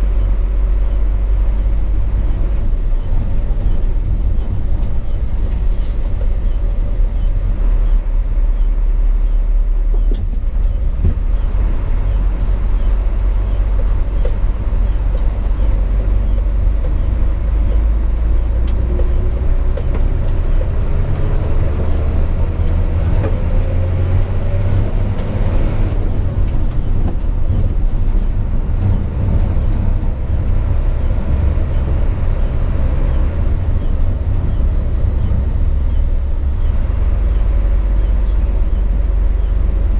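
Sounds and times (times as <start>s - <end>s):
road noise: 0.0s - 39.9s
truck diesel engine rumble: 0.0s - 39.9s.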